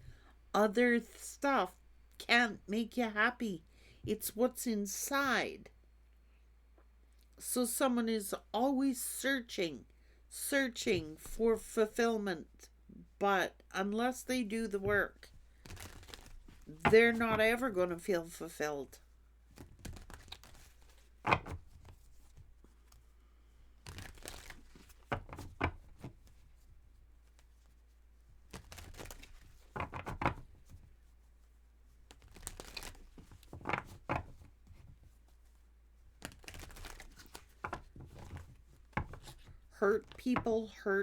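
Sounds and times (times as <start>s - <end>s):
cards shuffling: 15.6s - 18.1s, 19.5s - 23.0s, 23.8s - 26.5s, 28.4s - 30.8s, 31.9s - 35.4s, 36.1s - 40.4s.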